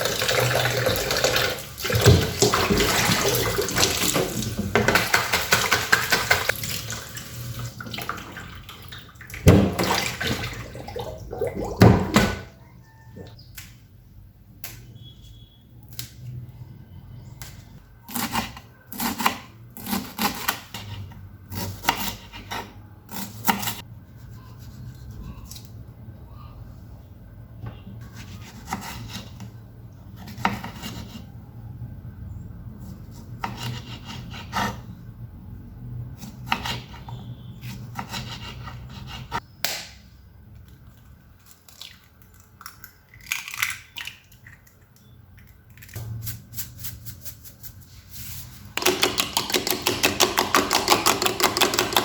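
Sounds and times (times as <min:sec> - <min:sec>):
utensils scraping and knocking: 0:48.3 - 0:52.0
fast even taps: 0:48.8 - 0:52.0.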